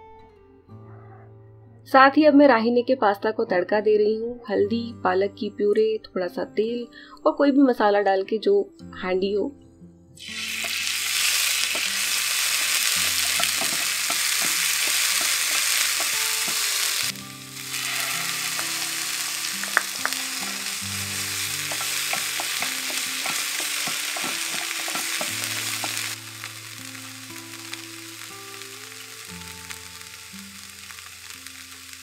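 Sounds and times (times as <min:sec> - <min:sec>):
hot oil sizzling in pan: 0:10.2 - 0:32.0.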